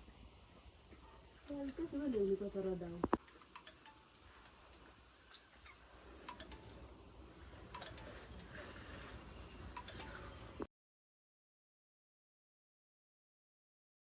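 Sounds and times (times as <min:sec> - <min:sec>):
high-pitched insect drone: 0:03.7 - 0:10.7.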